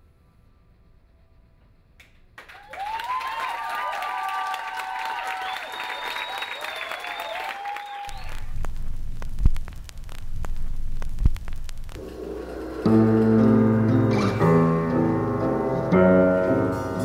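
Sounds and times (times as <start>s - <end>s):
audience applause: 2.4s - 8.6s
whistles: 2.4s - 8.6s
low hum: 8.1s - 17.0s.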